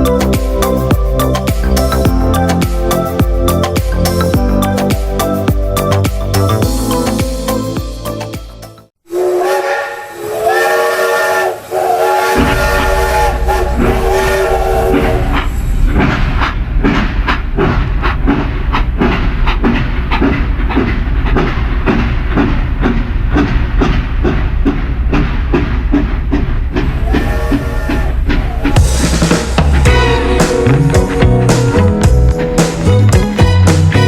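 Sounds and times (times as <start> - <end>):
low rhythmic train rumble: 0.0 - 34.0
train whistle chord: 9.1 - 15.3, 29.9 - 34.0.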